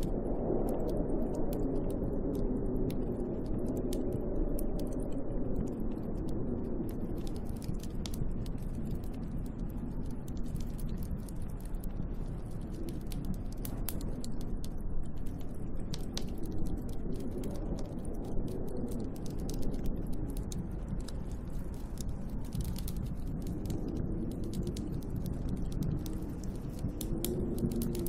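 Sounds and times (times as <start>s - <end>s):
light irregular ticks: 0.0s - 28.0s
snowstorm wind rumble: 0.0s - 28.0s.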